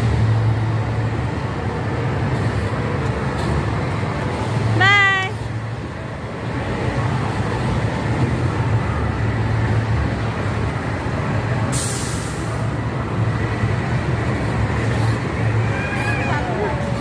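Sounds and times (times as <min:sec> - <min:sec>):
large vehicle engine humming: 0:00.0 - 0:17.0
hiss of released air: 0:11.7 - 0:12.6.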